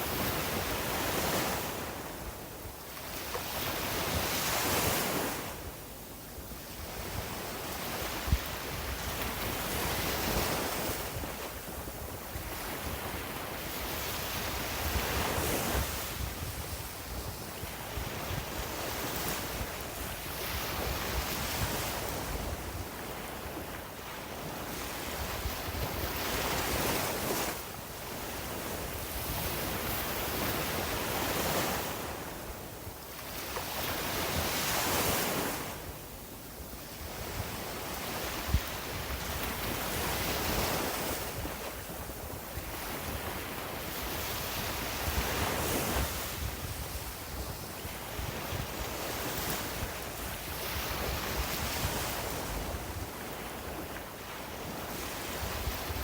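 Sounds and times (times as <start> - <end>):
wind rumbling on microphone: 6.6 - 36.0, 36.6 - 56.0.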